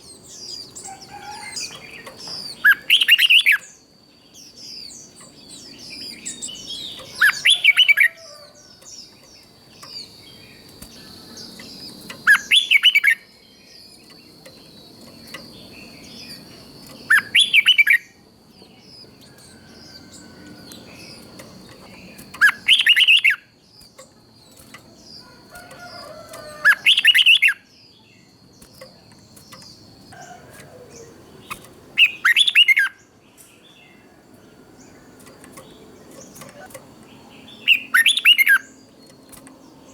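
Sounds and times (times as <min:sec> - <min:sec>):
bulbul warbled song phrases: 0:00.0 - 0:14.8
soft bird chirps: 0:00.0 - 0:39.9.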